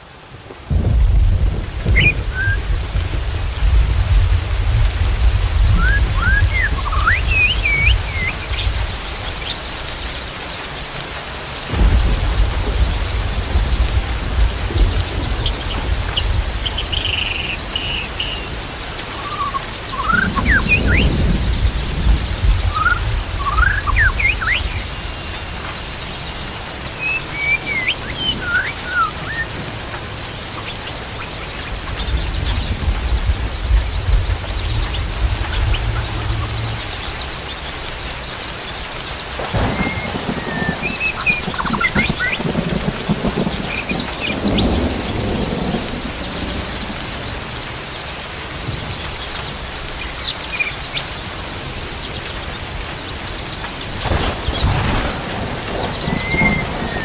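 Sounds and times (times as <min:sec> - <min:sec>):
bird whistling song: 0:01.9 - 0:02.7, 0:05.7 - 0:10.0, 0:15.4 - 0:18.6, 0:19.2 - 0:21.7, 0:22.4 - 0:24.9, 0:27.0 - 0:29.5, 0:39.6 - 0:42.5, 0:53.9 - 0:57.0
small birds chirping: 0:05.6 - 0:29.5, 0:30.1 - 0:57.0
low rumble: 0:32.2 - 0:38.2.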